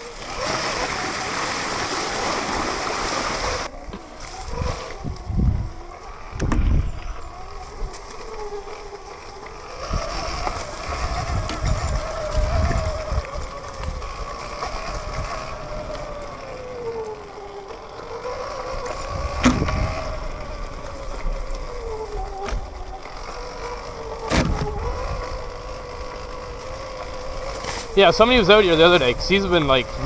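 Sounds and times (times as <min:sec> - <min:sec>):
electric dirt bike motor whining: 0:00.0 - 0:30.0.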